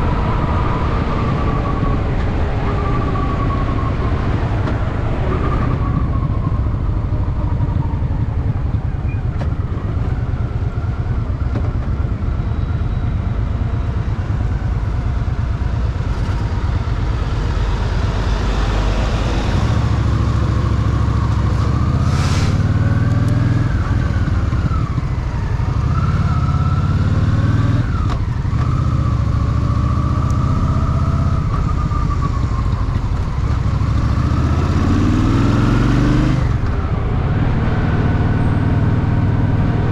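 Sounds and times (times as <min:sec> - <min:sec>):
brief hiss: 0:22.0 - 0:22.6.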